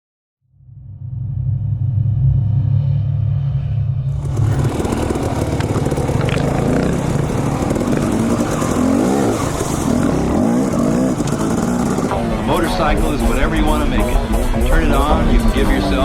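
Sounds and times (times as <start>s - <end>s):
dirt bike engine revving: 4.1s - 16.0s.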